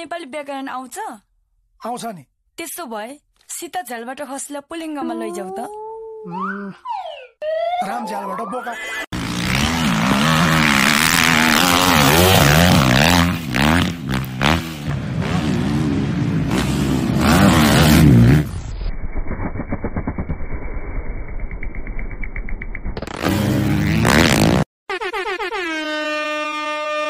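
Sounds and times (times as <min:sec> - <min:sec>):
dirt bike engine revving: 0:09.1 - 0:18.7, 0:23.0 - 0:24.7.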